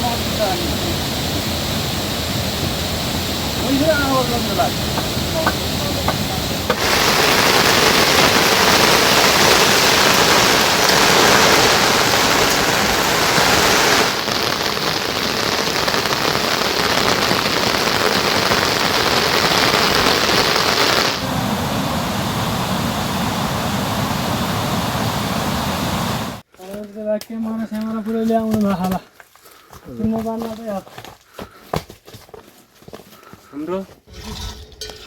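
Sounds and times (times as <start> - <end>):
heavy rain falling: 3.6 - 26.4.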